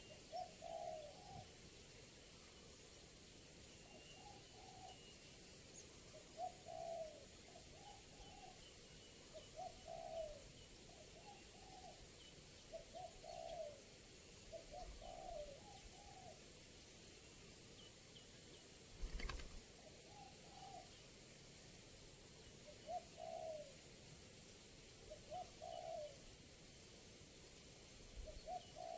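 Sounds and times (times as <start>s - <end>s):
dove cooing: 0.0s - 1.5s, 4.2s - 5.0s, 6.3s - 8.6s, 9.4s - 12.0s, 12.7s - 13.8s, 14.5s - 16.4s, 19.0s - 20.9s, 22.7s - 23.8s, 25.1s - 26.2s, 28.2s - 28.9s.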